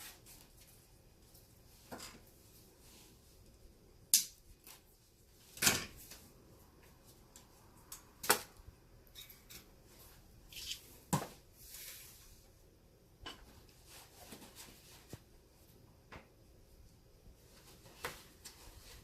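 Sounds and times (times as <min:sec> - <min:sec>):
rustling: 0:13.5 - 0:15.7.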